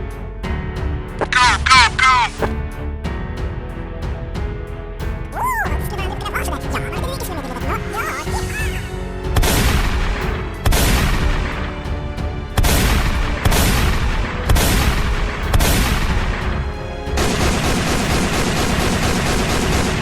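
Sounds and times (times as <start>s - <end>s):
loud blast booms: 12.6s - 16.6s.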